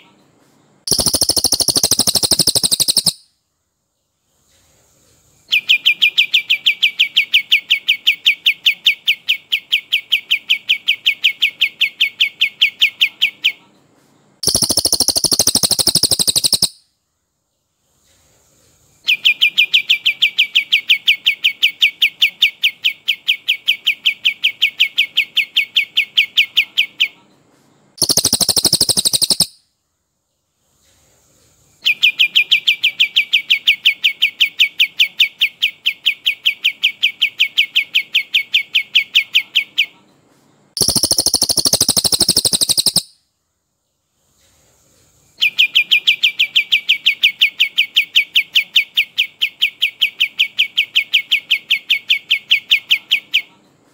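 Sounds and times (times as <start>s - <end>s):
songbird rolling song: 0.8s - 3.2s, 14.4s - 16.8s, 28.0s - 29.6s, 40.8s - 43.2s.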